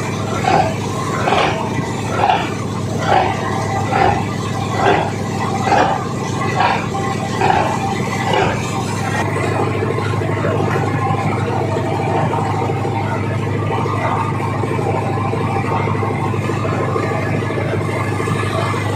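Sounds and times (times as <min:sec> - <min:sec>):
boat engine throbbing: 0:00.0 - 0:18.9.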